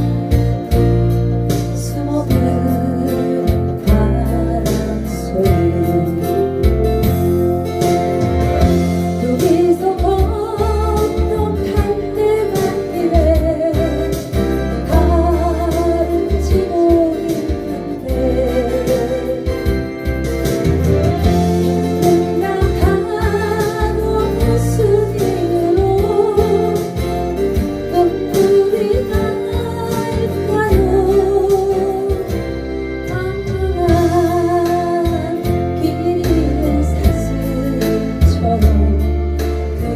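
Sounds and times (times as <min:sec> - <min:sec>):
acoustic guitar: 0:00.0 - 0:39.9
bass and keyboard accompaniment: 0:00.0 - 0:39.9
person singing a slow ballad: 0:00.0 - 0:39.9.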